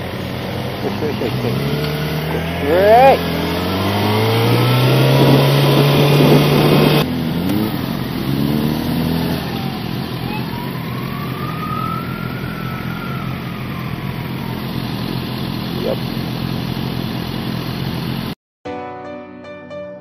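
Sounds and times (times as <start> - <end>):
motorcycle engine accelerating: 0.0 - 18.4
road noise: 0.0 - 18.4
wind noise: 3.6 - 7.0.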